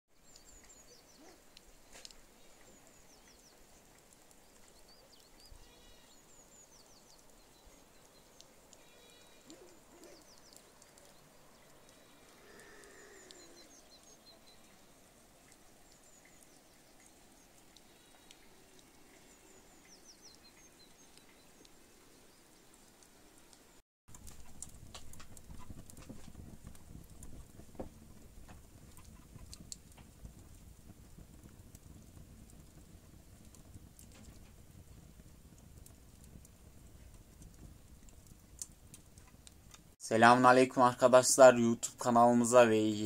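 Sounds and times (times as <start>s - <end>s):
small birds chirping: 0.2s - 27.9s
faint animal call: 5.5s - 6.2s, 8.7s - 10.3s, 11.8s - 14.5s.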